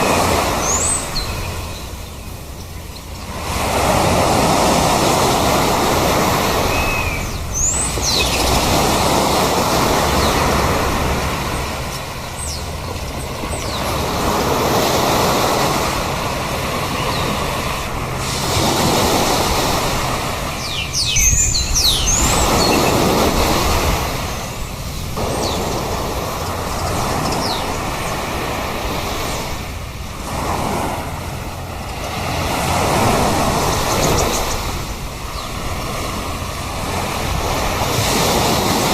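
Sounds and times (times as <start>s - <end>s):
birds high calls: 0.0s - 30.2s, 31.1s - 38.9s
sea waves breaking: 0.0s - 38.9s.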